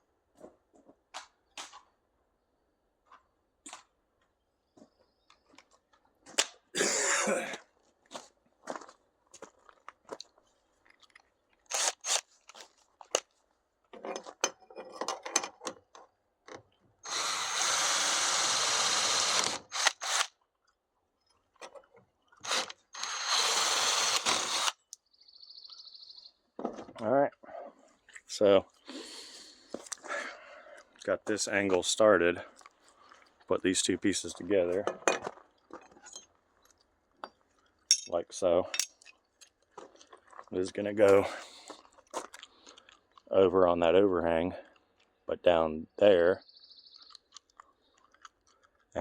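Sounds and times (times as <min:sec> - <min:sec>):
power tool running: 0:17.1 - 0:20.3, 0:22.4 - 0:24.7
clicks and knocks of handled tools: 0:37.2 - 0:40.0.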